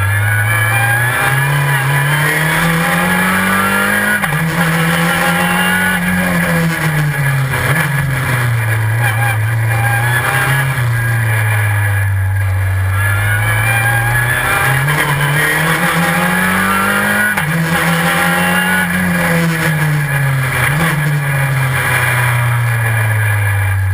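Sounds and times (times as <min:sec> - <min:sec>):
gear changes: 0:00.0 - 0:23.9
race car engine at full load: 0:00.0 - 0:23.9.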